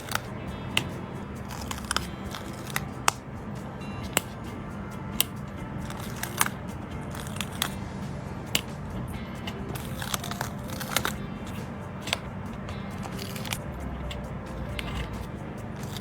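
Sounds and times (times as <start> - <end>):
sticker sheets crinkling: 0.0 - 3.3, 5.2 - 7.8, 9.4 - 16.0
quiet background music: 0.0 - 16.0.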